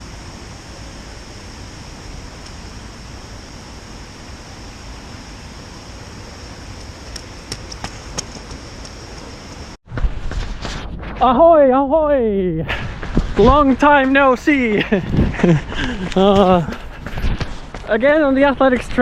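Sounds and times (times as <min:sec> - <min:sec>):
sharp ticks: 0:06.8 - 0:09.3.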